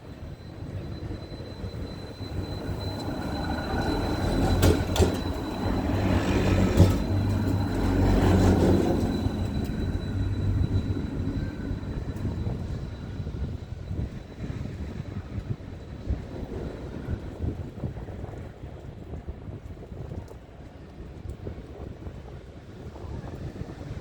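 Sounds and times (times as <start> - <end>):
heavy vehicle engine rumble: 0.0 - 12.9.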